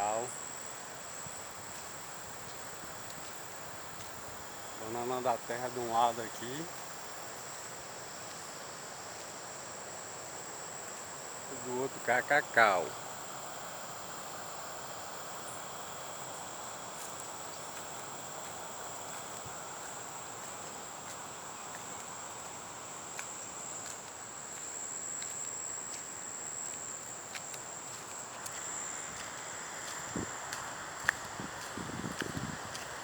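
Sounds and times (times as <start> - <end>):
background hiss: 0.0 - 33.0
insects buzzing: 0.0 - 33.0
faint ticks: 29.9 - 33.0.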